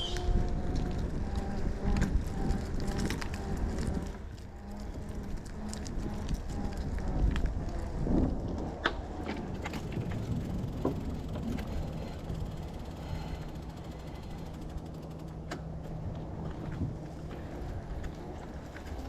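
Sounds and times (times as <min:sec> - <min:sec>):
bike clicks and rattles: 0:00.0 - 0:19.0
steady low hum: 0:00.0 - 0:19.0
tyres and wind rumble: 0:00.0 - 0:19.0.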